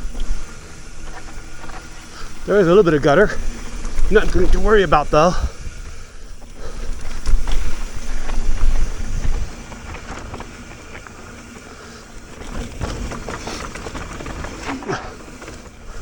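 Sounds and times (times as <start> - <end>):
bike clicks and rattles: 0.0 - 16.0
tyres rolling over dirt: 0.0 - 16.0
wind buffeting microphone: 2.4 - 11.0.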